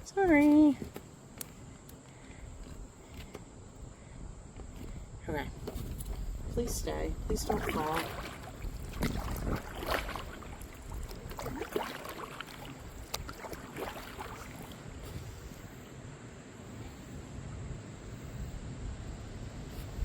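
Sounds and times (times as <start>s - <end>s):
kayak paddle strokes: 4.6s - 16.0s
water splashing against hull: 5.6s - 15.8s.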